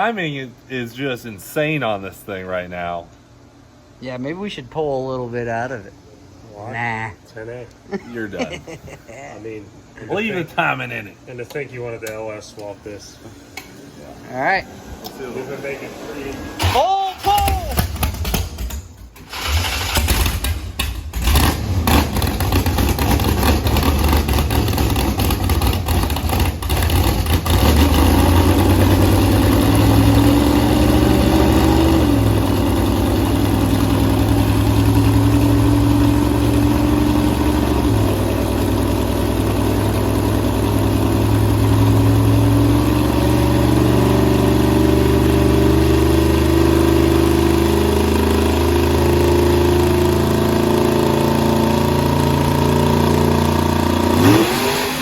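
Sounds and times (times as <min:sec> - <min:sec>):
engine running hard on dyno: 0:19.3 - 0:55.0.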